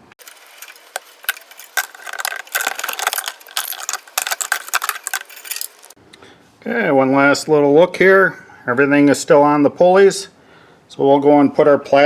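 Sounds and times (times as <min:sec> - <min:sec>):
hand tools clicking and rattling: 0:00.0 - 0:06.0.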